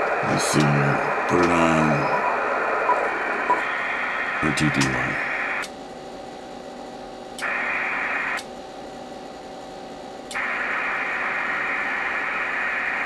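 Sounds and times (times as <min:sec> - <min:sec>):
radio speaker hiss: 0:00.0 - 0:05.7, 0:07.4 - 0:08.5, 0:10.3 - 0:13.0
radio switch clicks: 0:04.6 - 0:05.8, 0:10.3 - 0:10.5.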